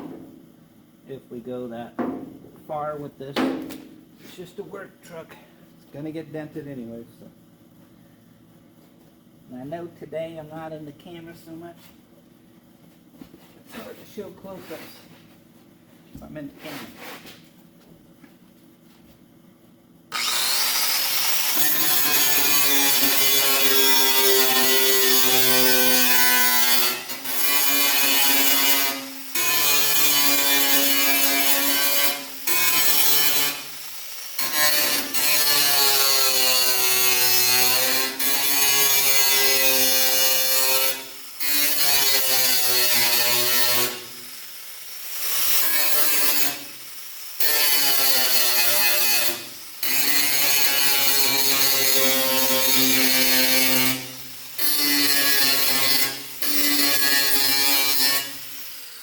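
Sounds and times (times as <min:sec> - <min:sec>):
electric grinder grinding metal: 0:20.1 - 0:59.0.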